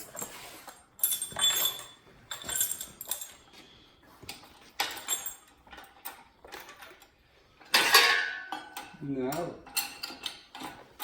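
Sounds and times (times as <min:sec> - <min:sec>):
metal pieces clinking: 0:00.0 - 0:03.5, 0:04.8 - 0:07.0.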